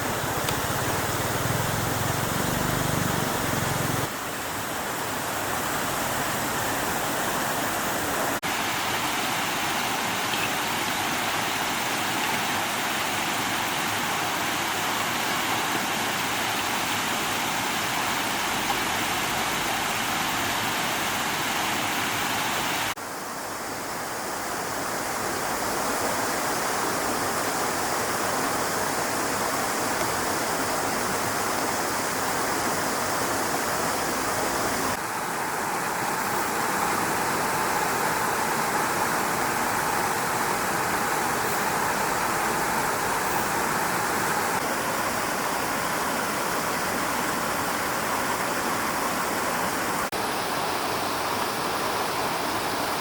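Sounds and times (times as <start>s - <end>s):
stream water flowing: 0.0s - 53.0s.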